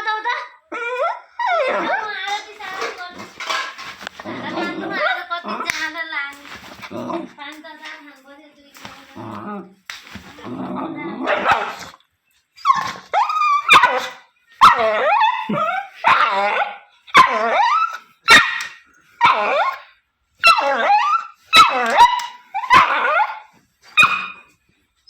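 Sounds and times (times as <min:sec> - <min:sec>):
dog barking and whining: 0:00.2 - 0:03.6, 0:11.1 - 0:12.0, 0:12.6 - 0:24.5.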